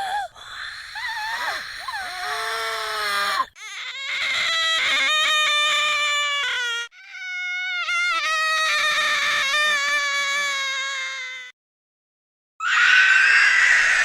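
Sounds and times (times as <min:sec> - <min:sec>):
shrill wavering scream: 0:12.6 - 0:14.0.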